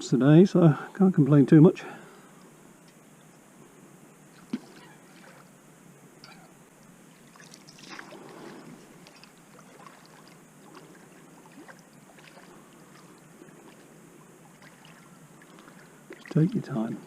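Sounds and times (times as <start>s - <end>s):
water sloshing and splashing: 4.4s - 5.5s, 7.1s - 16.7s.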